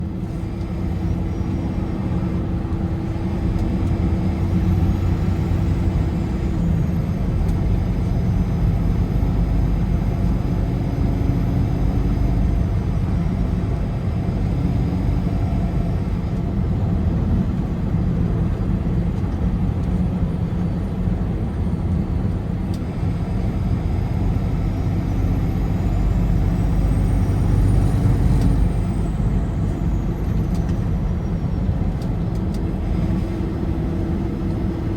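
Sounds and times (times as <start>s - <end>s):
car road and tyre noise: 0.0s - 34.9s
low engine drone: 0.0s - 34.9s.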